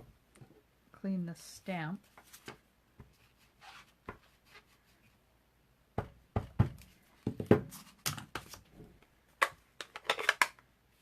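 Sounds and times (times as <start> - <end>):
knocks of stamping supplies: 6.0 - 8.5.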